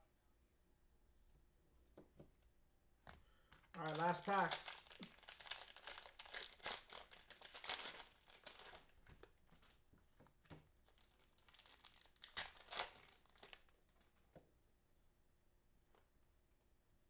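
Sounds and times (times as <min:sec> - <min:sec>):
plastic wrapper crinkling and tearing: 0:03.5 - 0:14.1.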